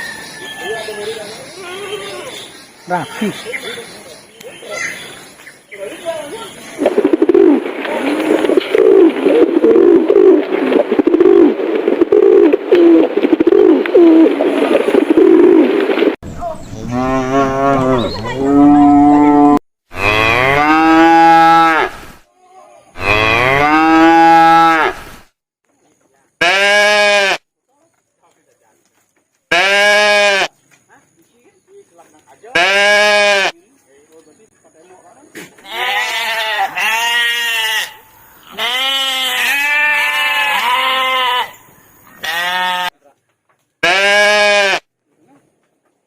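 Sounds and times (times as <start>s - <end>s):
cattle mooing: 16.8s - 21.9s, 23.0s - 25.0s
sheep or goat bleating: 35.6s - 41.6s, 42.2s - 43.0s, 43.8s - 44.8s.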